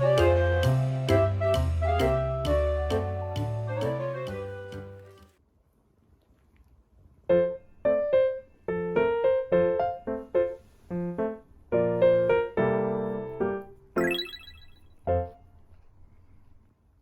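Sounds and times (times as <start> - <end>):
piano melody: 14.0 - 14.7.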